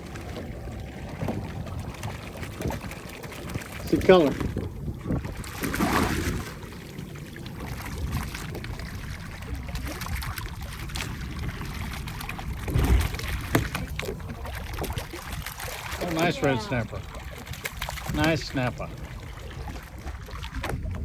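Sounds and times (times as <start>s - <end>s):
low water surge: 0.0s - 21.0s
water sloshing and trickling: 0.0s - 21.0s
steady low rumble: 6.3s - 21.0s.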